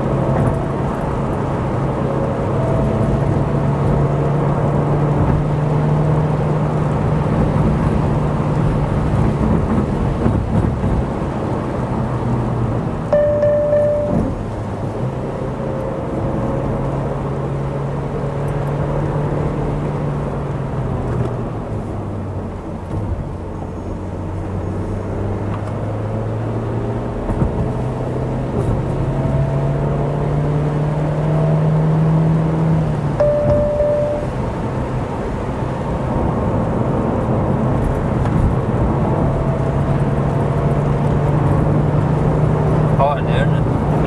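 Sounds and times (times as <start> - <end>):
car engine running: 0.0 - 17.8, 32.5 - 44.0
road and wind noise: 0.0 - 44.0.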